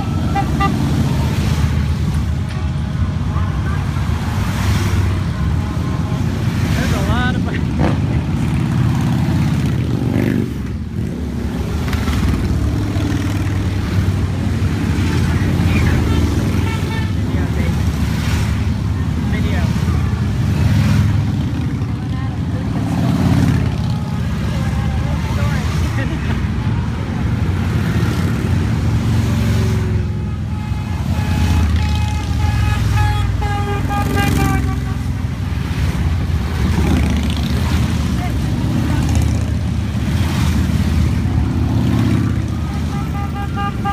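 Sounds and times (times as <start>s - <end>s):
horn sounding: 0.0s - 1.4s, 29.9s - 35.5s, 42.5s - 43.9s
motorcycles riding past: 0.0s - 43.9s.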